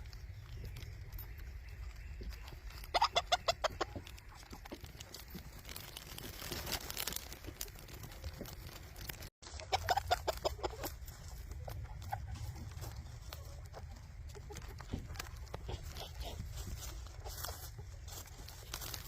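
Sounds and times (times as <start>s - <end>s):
chickens clucking: 0.0s - 19.0s
low background rumble: 7.4s - 19.0s.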